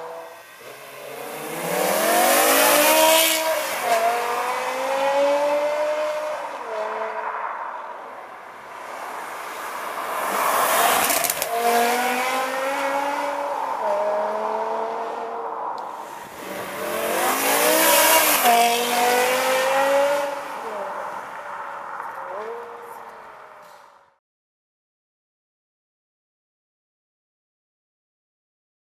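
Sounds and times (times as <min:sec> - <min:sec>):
car engine accelerating hard: 0:00.0 - 0:06.2, 0:16.0 - 0:20.8.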